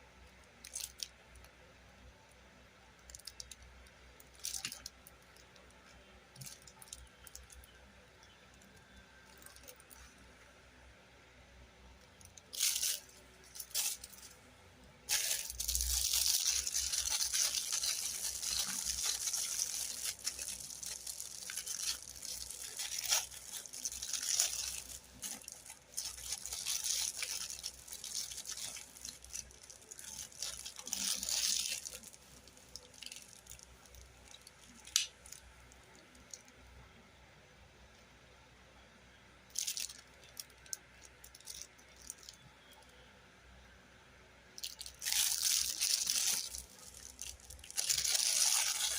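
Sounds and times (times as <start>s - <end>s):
packaging rustling and crinkling: 12.4s - 14.4s, 15.1s - 35.4s, 44.6s - 48.9s
sharp crackles: 15.1s - 35.4s.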